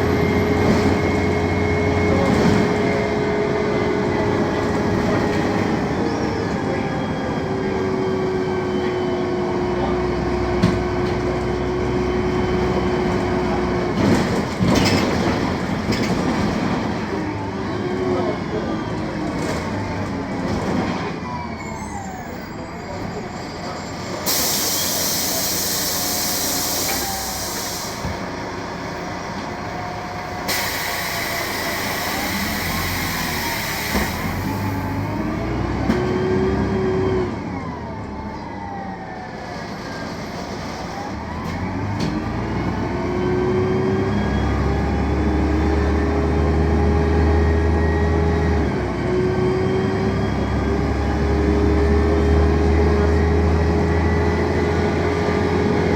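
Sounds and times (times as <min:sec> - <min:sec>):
bus diesel engine pulling away: 0:00.0 - 0:55.9
air brake hissing: 0:24.1 - 0:28.2, 0:30.4 - 0:35.0.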